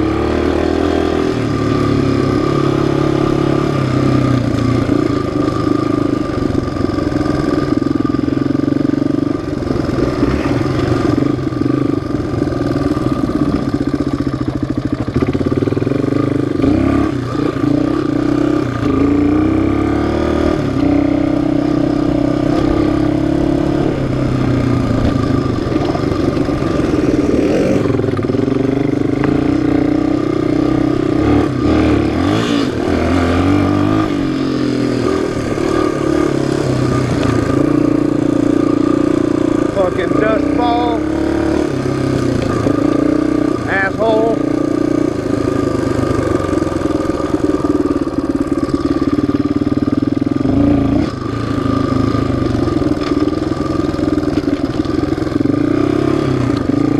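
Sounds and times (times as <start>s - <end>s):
off-road engine revving: 0.0s - 56.9s.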